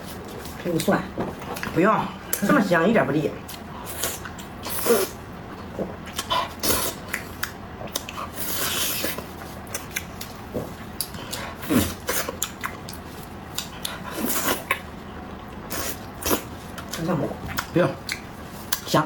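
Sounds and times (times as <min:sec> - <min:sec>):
wet chewing: 0:06.0 - 0:14.9, 0:15.5 - 0:18.9.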